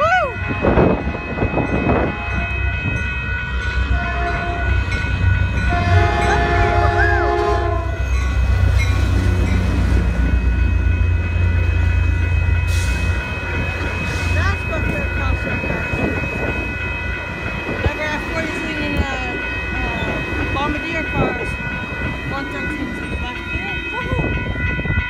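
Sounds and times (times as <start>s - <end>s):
diesel train engine rumble: 0.0s - 25.0s
train air horn: 0.4s - 2.9s, 3.9s - 4.8s, 5.7s - 8.0s.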